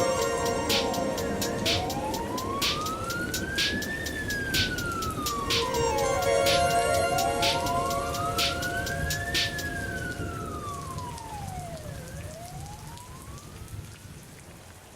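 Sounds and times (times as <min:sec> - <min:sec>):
sharp hits: 0:00.0 - 0:09.8
synthesized siren-like tone: 0:00.0 - 0:12.0
rain-like noise hiss: 0:00.0 - 0:14.9.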